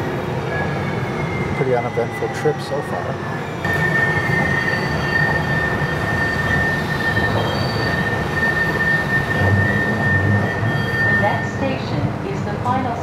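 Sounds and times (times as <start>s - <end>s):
wheels squealing on rails: 0.0s - 12.6s
train rumble inside passenger car: 3.6s - 13.0s.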